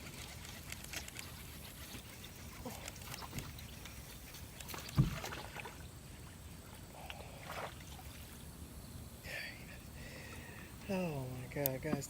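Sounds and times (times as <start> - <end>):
faint clicks and rustles: 0.0 - 5.2
dull thump on metal boat: 4.9 - 5.4.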